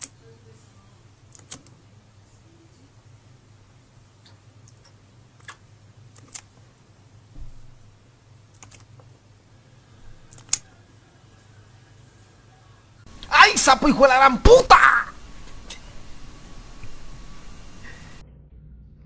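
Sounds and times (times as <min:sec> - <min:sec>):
low steady hum: 0:00.0 - 0:19.0
sharp light clicks: 0:01.3 - 0:01.7, 0:10.3 - 0:10.7
dull thump: 0:07.3 - 0:07.9.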